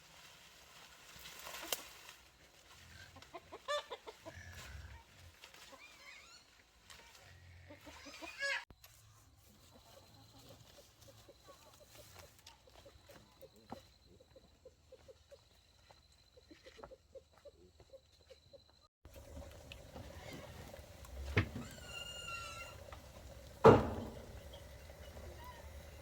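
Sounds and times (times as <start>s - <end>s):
chickens clucking: 2.9s - 4.7s, 9.5s - 26.0s.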